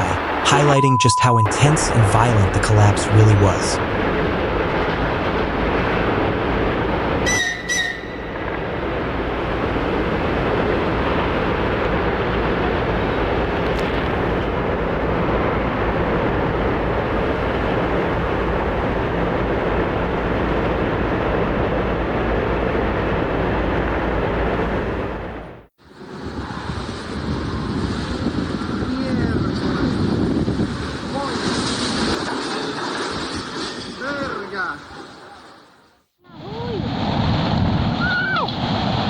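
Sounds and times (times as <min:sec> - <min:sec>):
high whistling tones: 0:00.0 - 0:01.6, 0:07.2 - 0:08.5.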